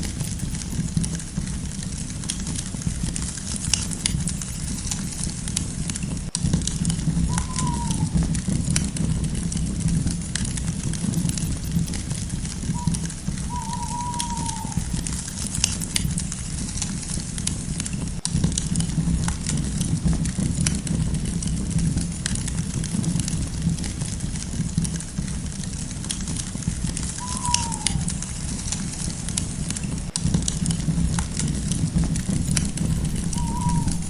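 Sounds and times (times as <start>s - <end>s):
campfire crackling: 0.0s - 7.4s, 8.1s - 13.5s, 15.4s - 34.0s
falling whistle-like call: 7.2s - 8.3s, 12.7s - 16.1s, 27.2s - 28.4s, 32.5s - 34.0s.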